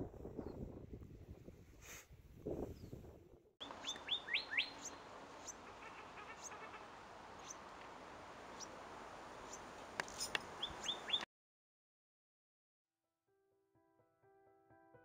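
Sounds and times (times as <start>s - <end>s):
steady outdoor hiss: 3.6s - 11.2s
birds chirping: 3.6s - 11.3s.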